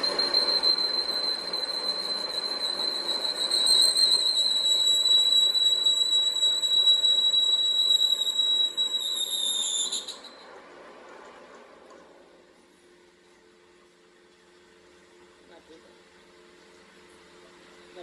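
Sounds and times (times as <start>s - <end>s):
machine whining while cutting metal: 0.0s - 10.1s.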